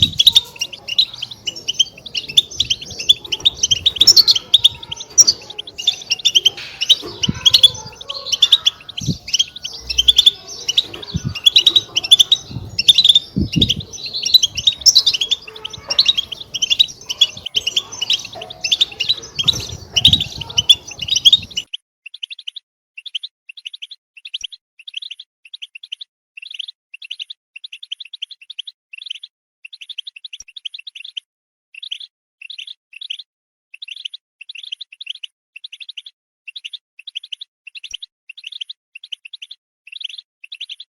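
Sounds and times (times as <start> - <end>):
goldfinches twittering and chirping: 0.0 - 21.7.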